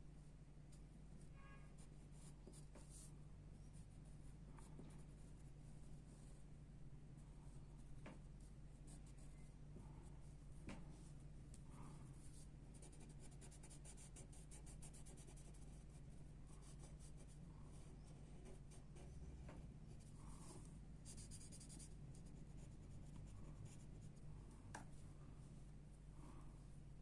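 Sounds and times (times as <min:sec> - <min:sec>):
pencil scratching on paper: 0:12.1 - 0:16.0, 0:16.6 - 0:19.2, 0:19.9 - 0:24.1.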